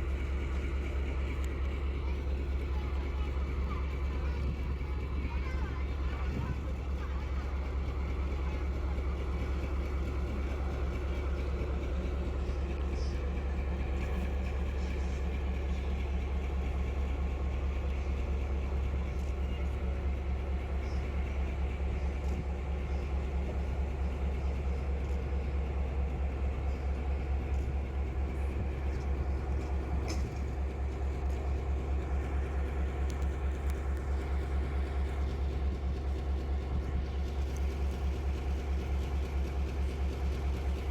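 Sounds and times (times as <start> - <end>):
train rumbling: 0.0 - 40.9
faint clicks: 33.0 - 34.3.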